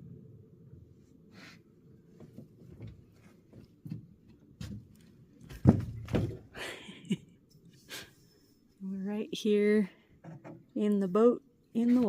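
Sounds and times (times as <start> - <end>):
knocks and clunks: 3.8 - 6.6, 10.2 - 10.8.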